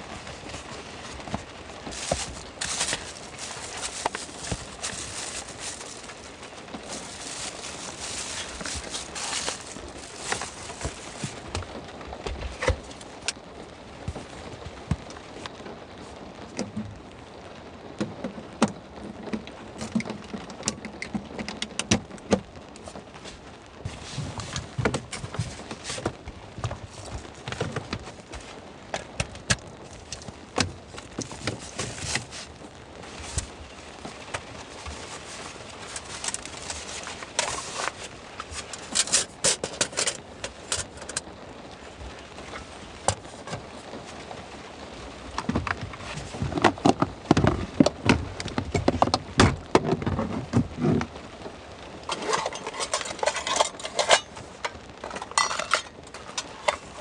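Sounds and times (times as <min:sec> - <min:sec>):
objects clicking and clattering: 0:00.2 - 0:11.7, 0:34.3 - 0:41.3, 0:52.0 - 0:57.0.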